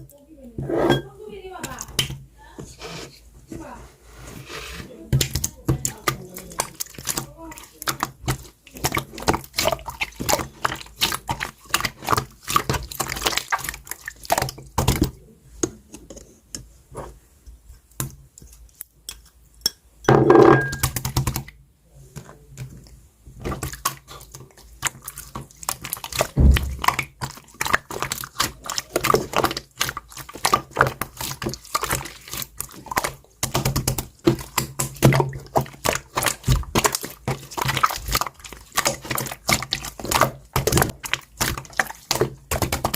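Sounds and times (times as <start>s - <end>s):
slime squelching and popping: 1.6s - 2.2s, 5.1s - 15.8s, 20.4s - 21.6s, 23.4s - 42.9s.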